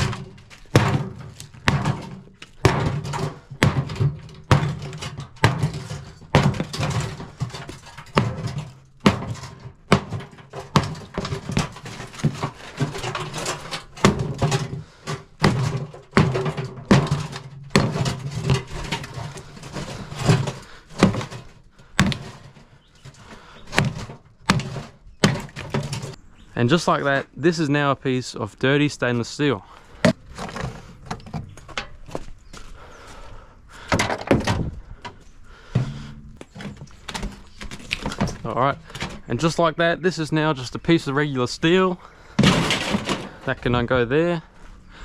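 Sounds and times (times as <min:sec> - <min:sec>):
axe striking sheet metal: 0:00.0 - 0:11.8.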